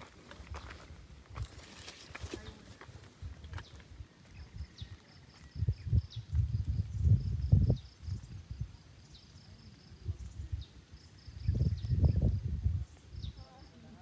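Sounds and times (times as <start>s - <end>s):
insect chirping: 0.3s - 14.0s
low rumbling on microphone: 5.5s - 8.8s, 10.0s - 13.4s.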